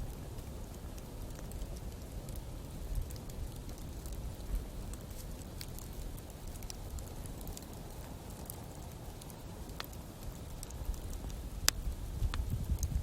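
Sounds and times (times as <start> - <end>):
campfire crackling and popping: 0.0 - 13.0
low steady rumble: 0.0 - 13.0.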